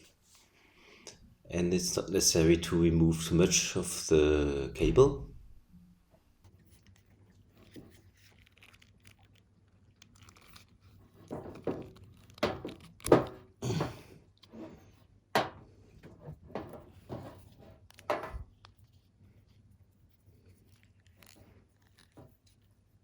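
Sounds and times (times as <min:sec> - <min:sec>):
cable stripper clicking and crunching: 0:11.2 - 0:13.6.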